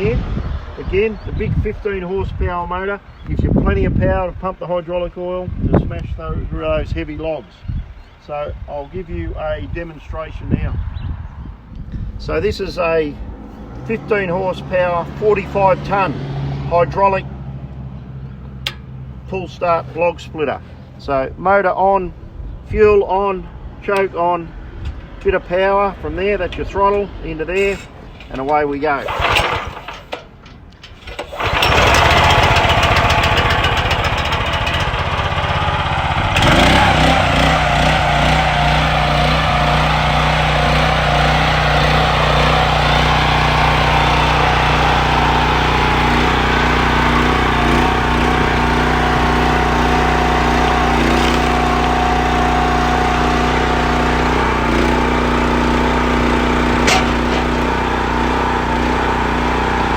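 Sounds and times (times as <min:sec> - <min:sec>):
engine starting and running: 0:26.2 - 0:59.9.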